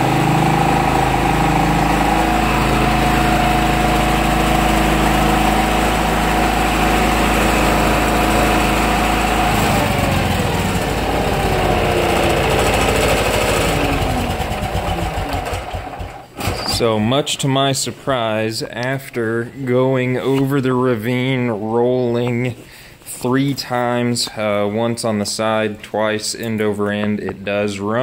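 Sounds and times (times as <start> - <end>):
falling engine whine: 0.0 - 17.0
tractor engine running: 0.0 - 17.0.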